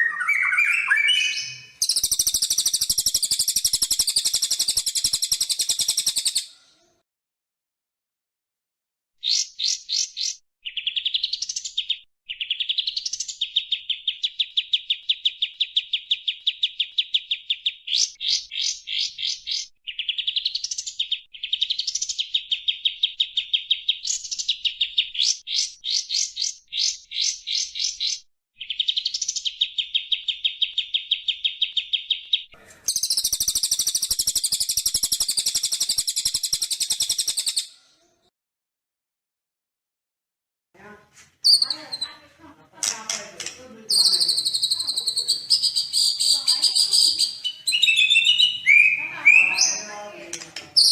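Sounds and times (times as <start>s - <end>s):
bird chip trills: 0.0s - 6.5s, 28.6s - 37.7s, 43.9s - 50.0s.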